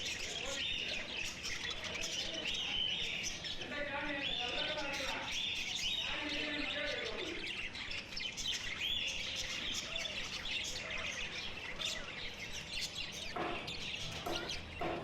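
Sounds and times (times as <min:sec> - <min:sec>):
caged birds chirping: 0:00.0 - 0:15.0.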